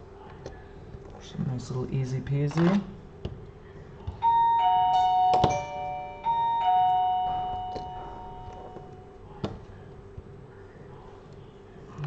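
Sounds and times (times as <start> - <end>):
electronic two-tone doorbell chime: 4.2 - 9.1.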